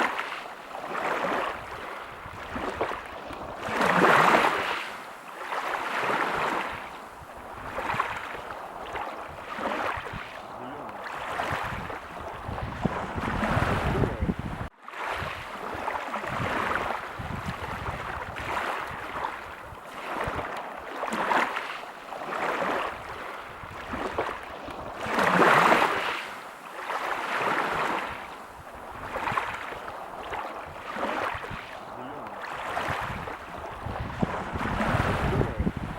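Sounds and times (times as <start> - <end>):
ocean waves breaking on beach: 0.0 - 35.9.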